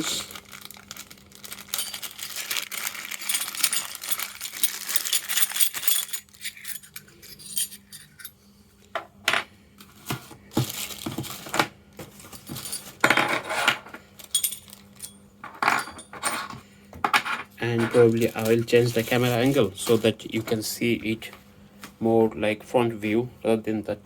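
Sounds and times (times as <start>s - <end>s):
packaging rustling and crinkling: 0.0s - 6.8s, 9.9s - 13.0s, 18.0s - 20.6s
small hard parts clinking: 1.5s - 8.4s, 12.3s - 19.2s.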